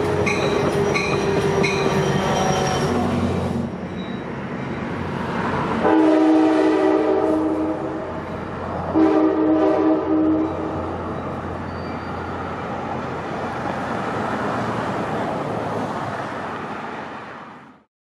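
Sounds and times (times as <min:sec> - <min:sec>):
train rumbling on rails: 0:00.0 - 0:17.8
train horn: 0:05.8 - 0:08.1, 0:08.9 - 0:10.9.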